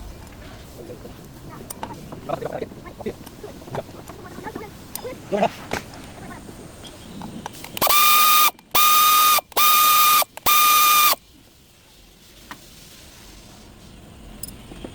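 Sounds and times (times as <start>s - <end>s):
power tool whining: 7.8s - 11.2s.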